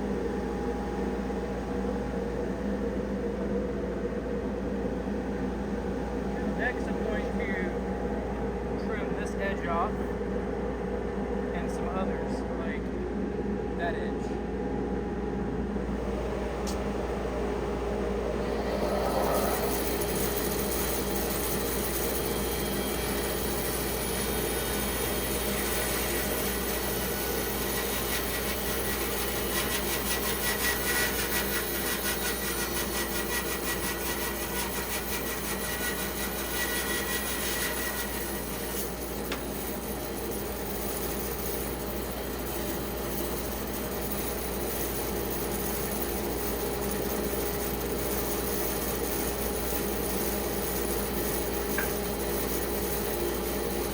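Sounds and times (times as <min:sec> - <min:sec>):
band saw cutting log: 0:16.4 - 0:53.9.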